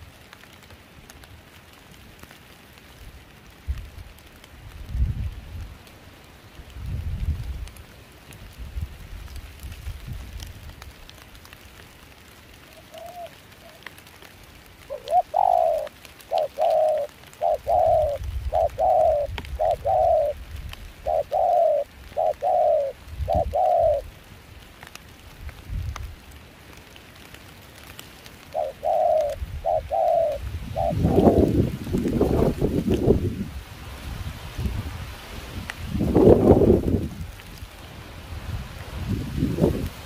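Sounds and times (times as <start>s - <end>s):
light rain: 0.0s - 40.0s
wind noise on microphone: 3.6s - 5.8s, 6.7s - 7.8s, 8.4s - 11.0s, 16.8s - 24.1s, 25.3s - 26.2s, 28.8s - 40.0s
dove cooing: 12.6s - 13.9s, 14.9s - 20.4s, 21.0s - 24.2s, 28.5s - 32.6s.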